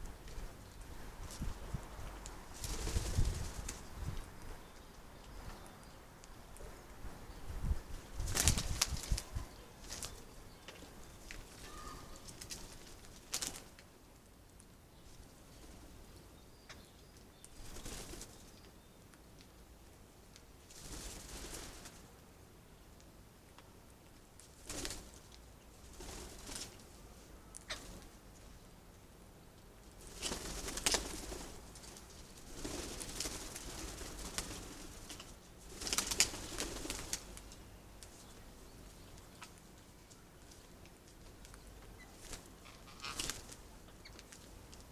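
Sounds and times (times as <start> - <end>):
faint garden birds: 0.0 - 44.9
wings fluttering: 1.2 - 4.3, 8.1 - 10.2, 11.2 - 13.8, 17.5 - 18.5, 20.7 - 22.1, 24.4 - 26.8, 30.0 - 38.4, 40.5 - 44.8
pigeon wings flapping: 2.6 - 3.8, 8.3 - 9.3, 24.6 - 25.2, 30.0 - 31.6, 32.4 - 37.4
short thin bird call: 11.6 - 12.2.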